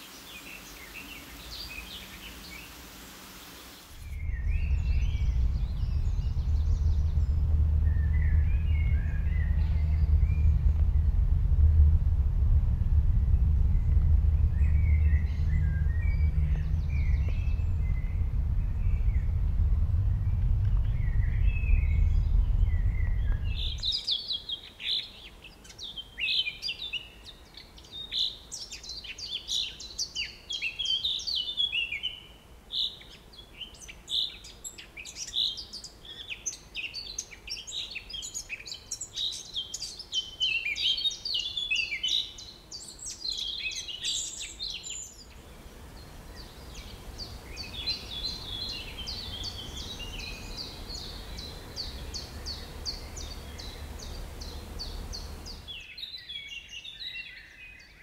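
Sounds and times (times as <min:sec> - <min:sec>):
birds chirping and trilling: 0:00.0 - 0:11.3, 0:13.3 - 0:58.0
low rumble: 0:04.0 - 0:23.9, 0:45.3 - 0:55.7.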